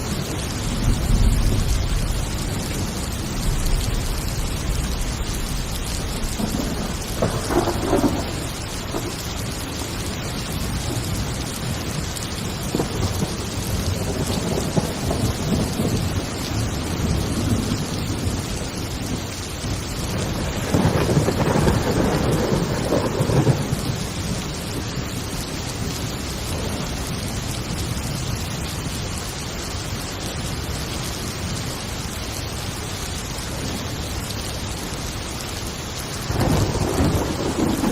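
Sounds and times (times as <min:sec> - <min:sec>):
thunder rumbling: 0:00.0 - 0:28.4, 0:36.1 - 0:37.9
heavy rain falling: 0:00.0 - 0:37.9.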